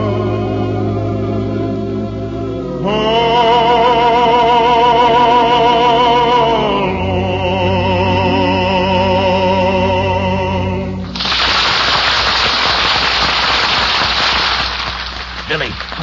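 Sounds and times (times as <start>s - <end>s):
man singing with vibrato: 2.7s - 11.1s
audience applause: 11.1s - 16.0s.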